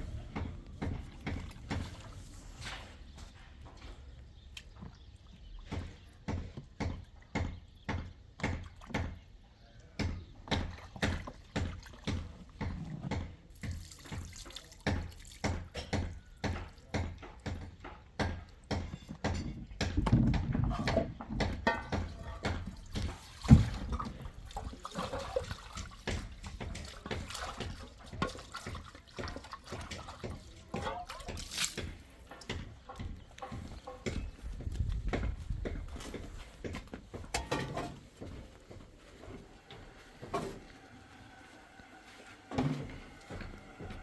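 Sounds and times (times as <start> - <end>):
water sloshing and splashing: 0.0 - 3.6, 10.5 - 16.7, 21.7 - 44.0.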